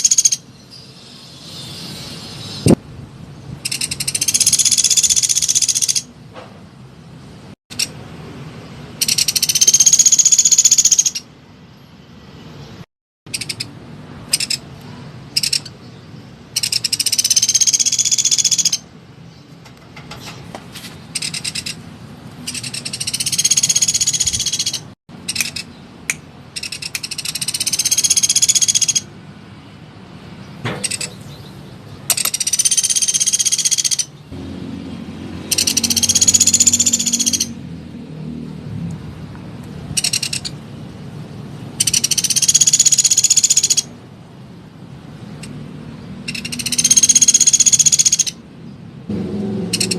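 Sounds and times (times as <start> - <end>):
woodpecker rattling trills: 0.0 - 0.4, 3.6 - 6.1, 9.0 - 11.2, 13.3 - 13.7, 14.3 - 14.6, 15.4 - 15.7, 16.5 - 18.8, 21.2 - 21.8, 22.5 - 25.7, 26.6 - 29.1, 32.1 - 34.2, 35.5 - 37.6, 40.0 - 40.5, 41.8 - 43.9, 46.2 - 48.4.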